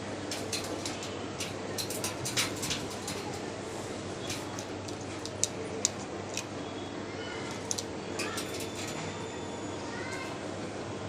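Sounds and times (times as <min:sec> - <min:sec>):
steady background noise: 0:00.0 - 0:11.0
parrots clicking and chirping: 0:00.3 - 0:03.4, 0:04.2 - 0:06.5, 0:07.5 - 0:08.9.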